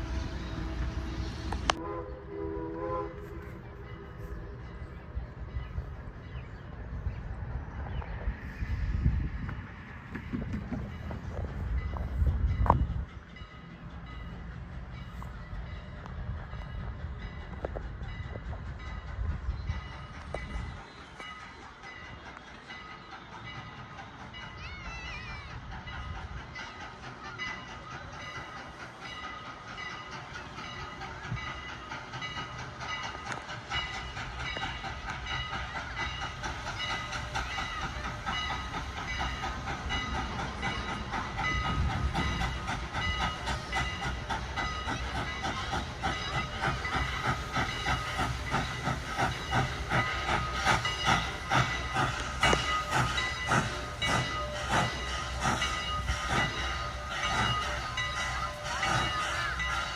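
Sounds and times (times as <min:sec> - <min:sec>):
steam locomotive exhaust beats: 0:00.0 - 0:59.9
hiss of steam: 0:19.8 - 0:59.9.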